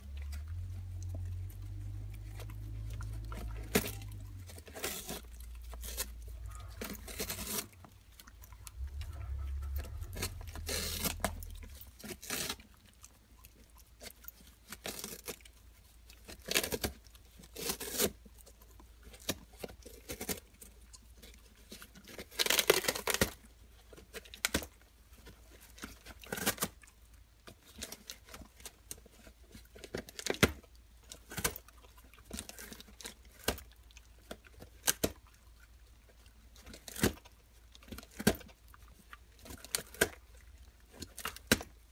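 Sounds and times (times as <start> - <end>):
dog tearing cardboard: 0.3 - 8.6, 9.6 - 35.3, 36.6 - 41.8.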